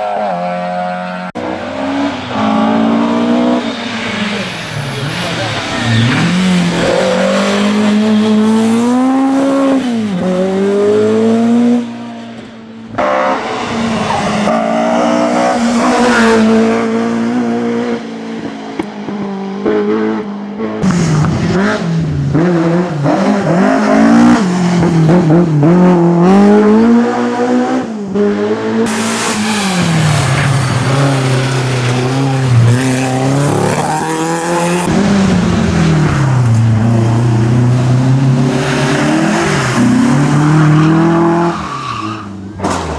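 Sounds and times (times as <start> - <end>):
race car engines revving: 0.0 - 42.9
tyre squeal: 1.4 - 8.7.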